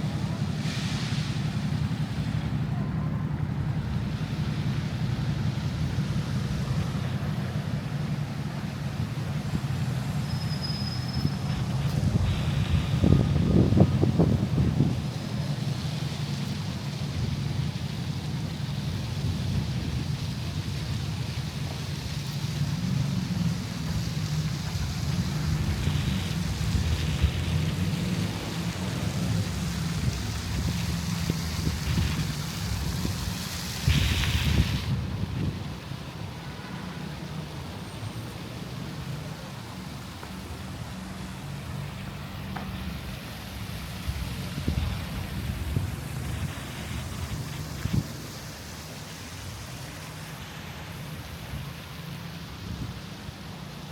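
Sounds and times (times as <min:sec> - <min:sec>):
passers-by voices: 0:00.0 - 0:04.4
street low rumble: 0:00.0 - 0:53.9.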